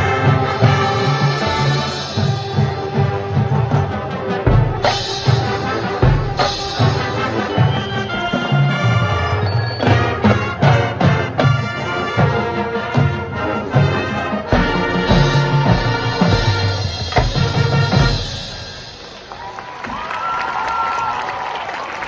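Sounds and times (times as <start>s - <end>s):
brass holding chords: 0.0s - 18.9s.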